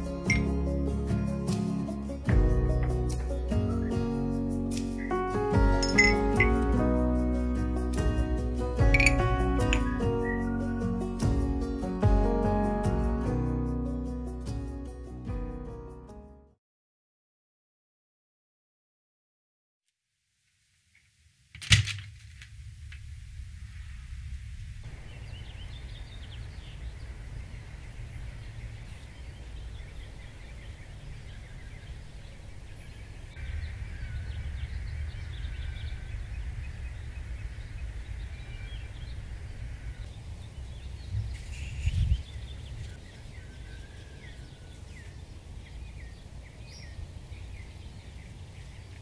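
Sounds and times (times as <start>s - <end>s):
small birds chirping: 1.5s - 11.9s, 24.9s - 49.0s
low outdoor rumble: 22.2s - 49.0s.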